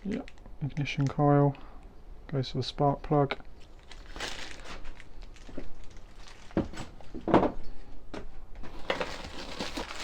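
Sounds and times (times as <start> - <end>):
plastic packaging crinkling: 3.6 - 7.1, 8.7 - 10.0.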